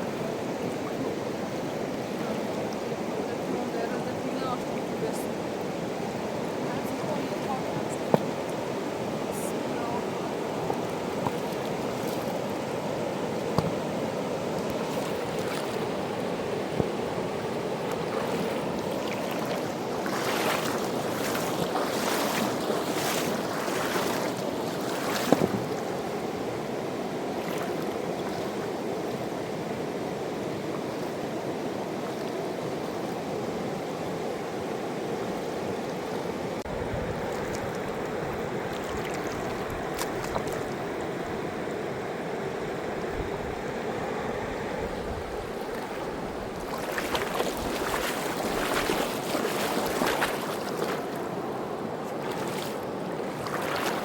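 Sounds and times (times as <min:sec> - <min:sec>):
river rushing: 0:00.0 - 0:54.0
sharp water splashes: 0:17.8 - 0:25.9, 0:45.6 - 0:51.3, 0:52.2 - 0:54.0.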